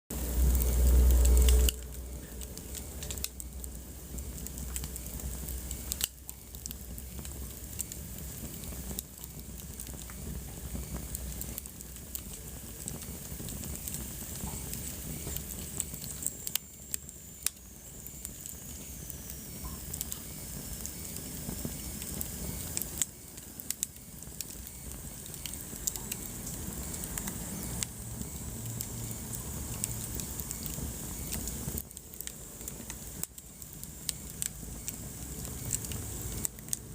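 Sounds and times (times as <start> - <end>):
wood fire crackling: 0.1 - 36.9
faint high whistle: 14.5 - 29.2.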